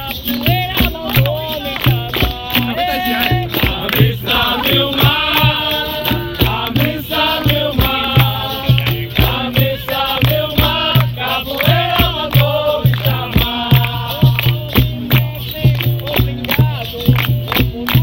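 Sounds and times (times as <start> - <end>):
rhythmic percussion: 0.0 - 18.0
group of voices chanting: 2.5 - 14.6.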